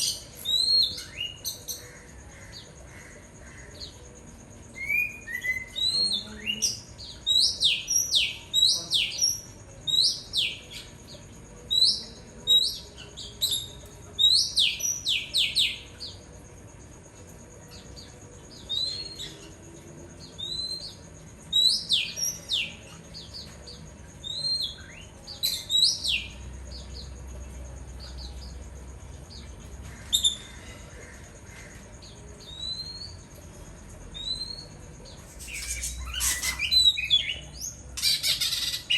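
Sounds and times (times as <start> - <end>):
bird whistling downward slides: 35.4 - 36.9.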